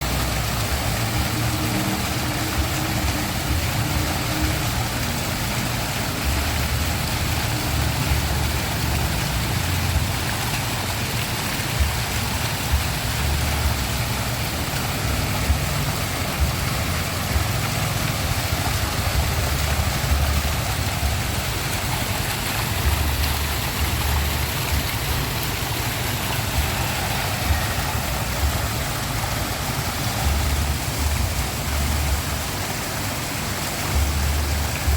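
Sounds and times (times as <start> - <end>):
waterfall rushing: 0.0 - 34.9
deep uneven rumble: 0.1 - 34.9.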